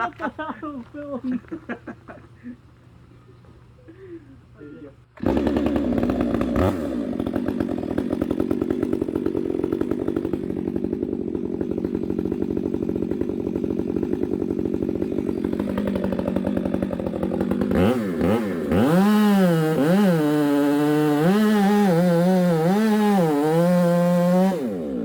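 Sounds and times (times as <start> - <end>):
chainsaw cutting wood: 5.2 - 25.0.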